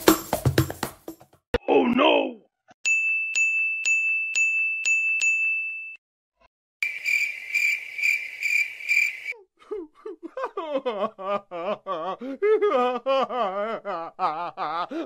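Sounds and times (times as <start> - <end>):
comic cartoon voice: 1.6 - 2.4
pulsing insect-like chirp: 6.8 - 9.3.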